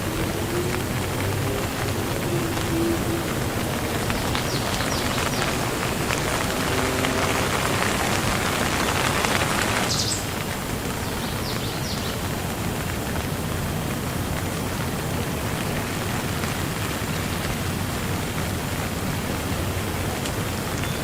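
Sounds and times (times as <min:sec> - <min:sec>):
bird chirping: 0:00.0 - 0:06.4, 0:11.0 - 0:12.2
rain falling: 0:00.0 - 0:21.0.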